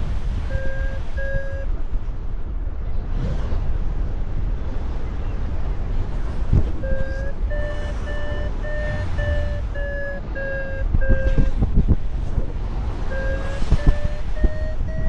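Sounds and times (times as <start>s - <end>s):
wind buffeting microphone: 0.0s - 15.0s
variometer beeping: 0.4s - 1.8s, 6.8s - 12.0s, 13.0s - 15.0s.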